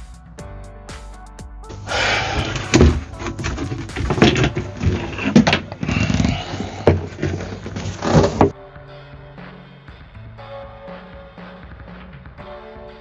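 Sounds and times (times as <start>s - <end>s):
hands knocking and rattling cover: 1.7s - 8.5s.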